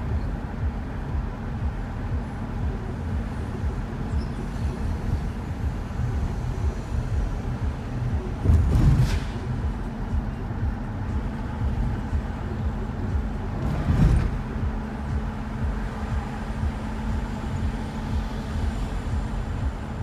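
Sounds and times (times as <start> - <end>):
van road and engine rumble: 0.0 - 20.0
loud bump or knock: 8.4 - 9.6.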